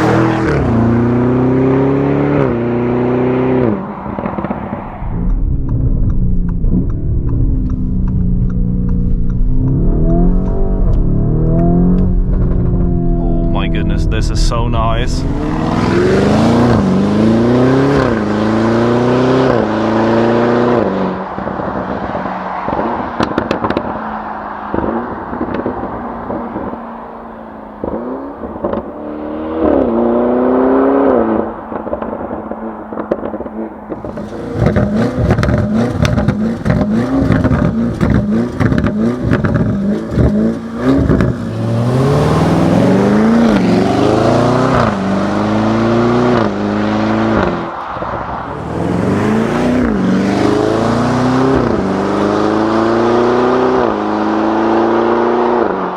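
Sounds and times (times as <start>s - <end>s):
car engine revving through gears: 0.0s - 55.9s
exhaust crackles and pops: 3.6s - 18.6s, 20.7s - 30.2s, 30.8s - 45.3s.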